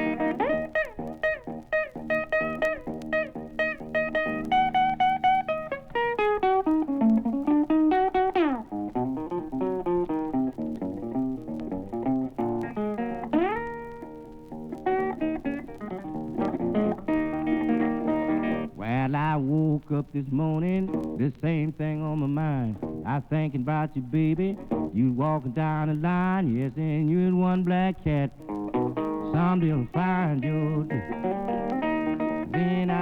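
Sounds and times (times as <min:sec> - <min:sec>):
blues guitar solo: 0:00.0 - 0:33.0
person singing: 0:16.8 - 0:33.0.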